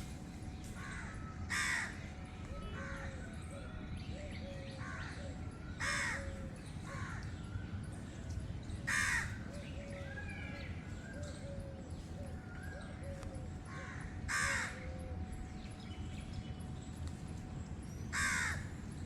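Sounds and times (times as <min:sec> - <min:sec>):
crows cawing: 0:00.8 - 0:02.0, 0:05.8 - 0:07.3, 0:08.9 - 0:09.5, 0:13.7 - 0:14.9, 0:18.1 - 0:18.7.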